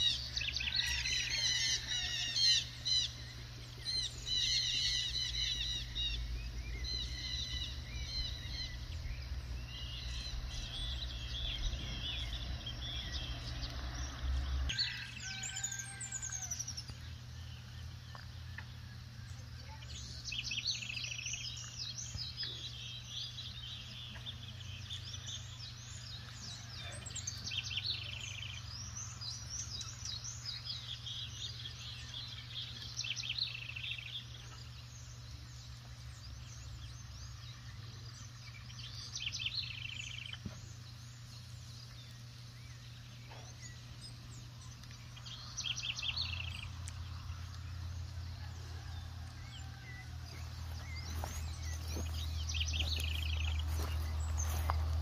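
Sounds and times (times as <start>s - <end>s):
songbirds singing: 0.0s - 55.0s
steady low rumble: 2.2s - 14.7s, 39.4s - 55.0s.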